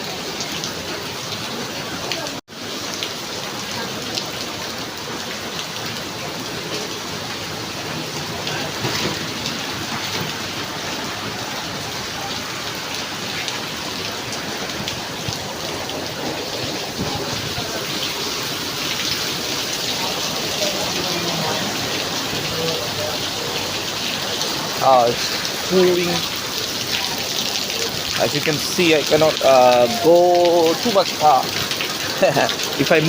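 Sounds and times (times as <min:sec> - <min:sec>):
heavy rain pouring: 0:00.0 - 0:33.0
raindrop ticks: 0:18.9 - 0:33.0.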